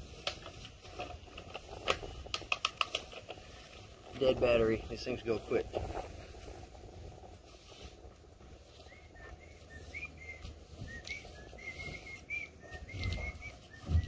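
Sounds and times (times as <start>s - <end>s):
bird chirping: 8.8s - 14.0s.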